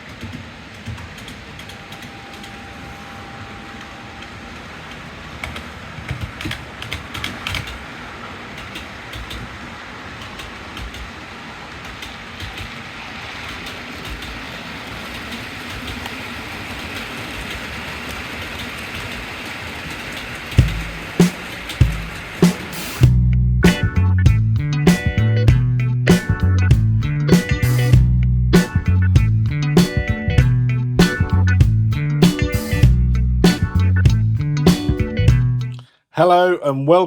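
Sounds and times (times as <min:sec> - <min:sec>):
wheels clicking over rail joints: 0:00.0 - 0:02.6, 0:04.9 - 0:23.0
model train hiss on track: 0:07.4 - 0:23.0.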